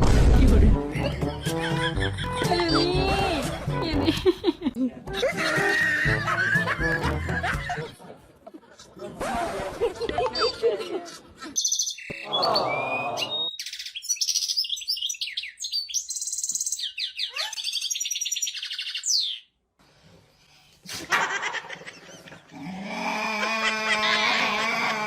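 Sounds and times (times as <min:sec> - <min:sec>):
bird chirping: 0:11.6 - 0:19.6.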